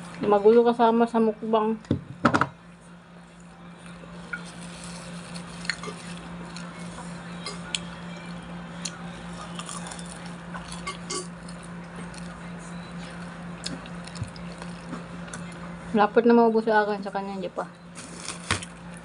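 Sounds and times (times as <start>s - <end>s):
steady low hum: 0.0s - 19.0s
chewing and mouth sounds: 7.6s - 15.6s.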